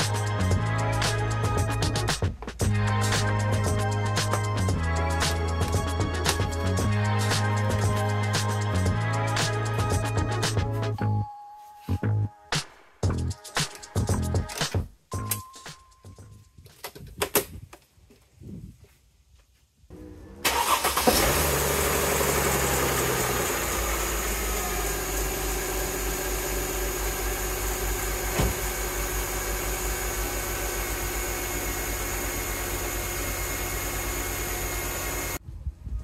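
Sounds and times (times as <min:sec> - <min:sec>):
car engine starting and idling: 0:19.9 - 0:35.4.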